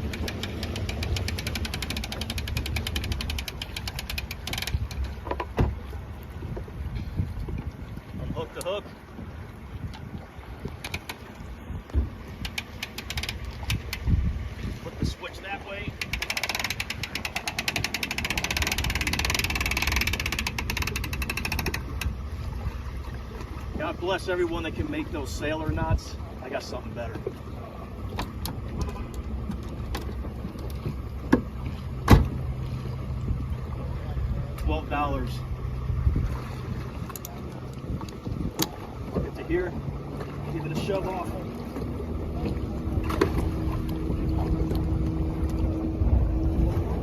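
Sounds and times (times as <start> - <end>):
strap ratchet clicking rapidly: 0.1 - 4.8, 16.0 - 21.8.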